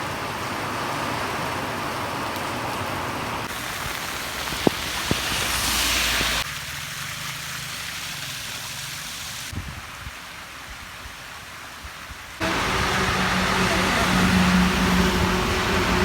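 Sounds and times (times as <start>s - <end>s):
heavy rain falling: 0.0s - 10.9s, 12.3s - 16.0s.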